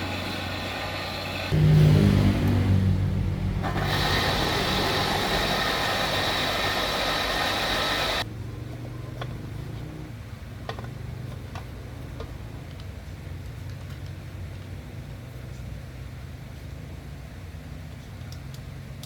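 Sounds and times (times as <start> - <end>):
loud hissing machine noise: 0.0 - 8.3
low engine-like hum: 0.0 - 19.0.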